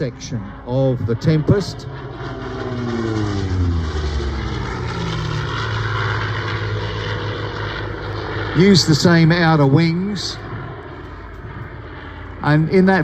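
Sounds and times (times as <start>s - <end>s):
propeller plane engine passing: 0.0s - 13.0s.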